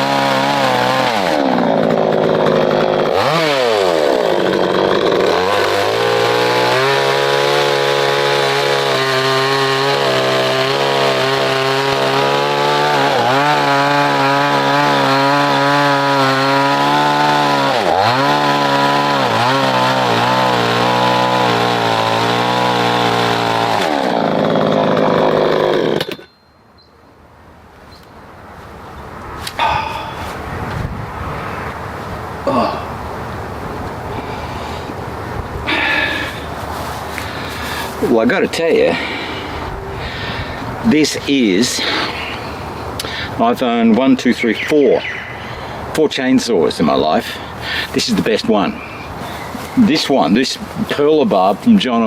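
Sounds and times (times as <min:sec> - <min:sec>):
chainsaw cutting wood: 0:00.0 - 0:26.4, 0:35.7 - 0:43.4, 0:46.9 - 0:52.0.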